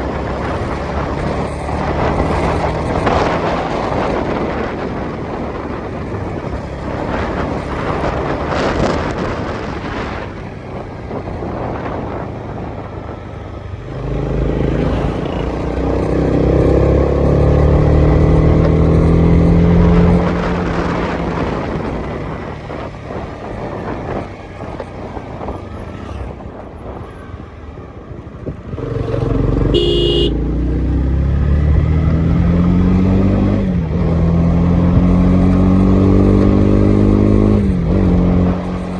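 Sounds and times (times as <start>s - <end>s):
wind and road noise: 0.0s - 38.9s
motorcycle engine running: 28.7s - 30.5s.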